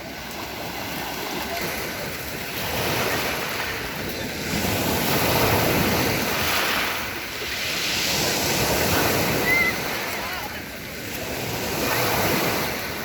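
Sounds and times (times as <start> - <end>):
surf washing up pebble beach: 0.0 - 13.0.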